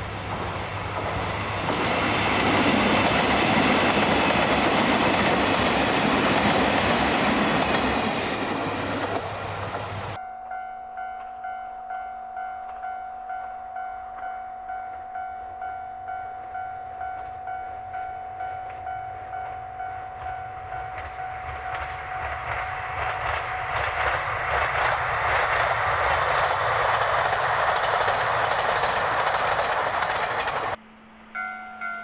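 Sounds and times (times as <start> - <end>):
train passing with wheel clatter: 0.0 - 10.2, 15.2 - 30.8
level crossing warning bell: 10.1 - 23.9, 31.4 - 32.0.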